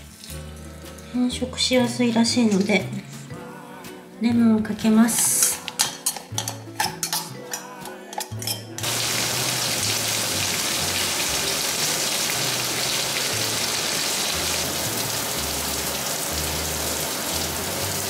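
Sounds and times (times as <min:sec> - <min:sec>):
meat sizzling in a frying pan: 0:08.8 - 0:18.0.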